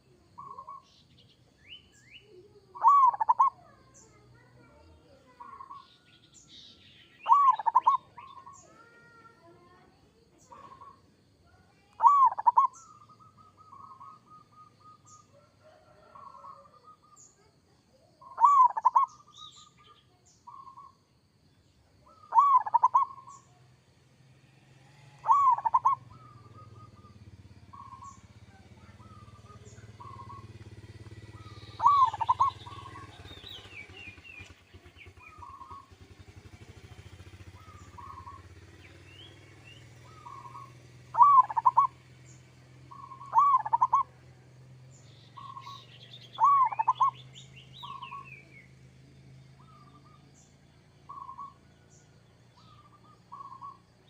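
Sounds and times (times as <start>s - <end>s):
dove cooing: 0.0s - 0.9s, 2.4s - 4.7s, 7.2s - 17.4s, 18.0s - 19.8s, 22.0s - 23.5s, 25.0s - 34.2s, 35.2s - 39.1s, 40.0s - 42.0s, 42.8s - 44.3s, 46.4s - 47.2s, 51.1s - 51.6s, 52.6s - 53.9s.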